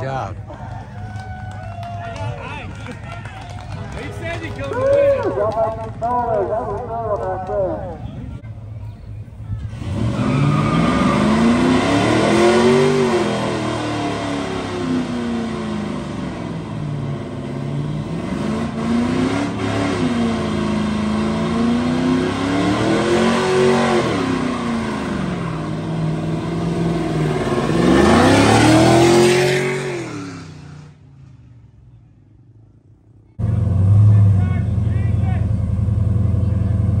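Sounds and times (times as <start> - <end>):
car engine revving hard: 9.7 - 30.8.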